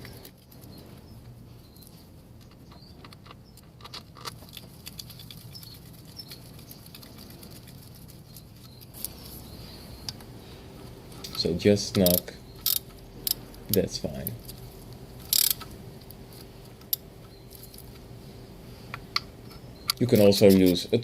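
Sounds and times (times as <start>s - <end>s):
faint low hum: 0.0s - 21.0s
hand wrench clicks: 11.2s - 13.8s, 15.3s - 15.7s.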